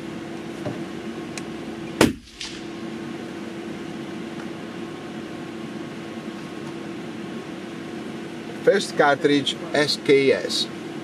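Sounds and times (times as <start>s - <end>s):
steady low hum: 0.0s - 11.0s
sharp loud crack: 2.0s - 2.8s.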